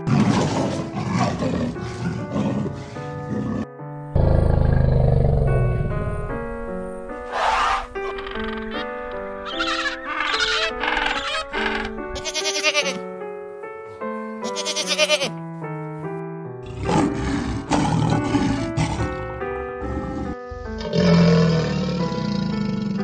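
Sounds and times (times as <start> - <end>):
lion roaring: 0.0 - 6.1, 7.3 - 8.2, 16.6 - 23.0
background music: 0.0 - 23.0
crocodile growl: 0.1 - 6.0, 16.6 - 23.0
penguin chick whistling calls: 9.5 - 11.7.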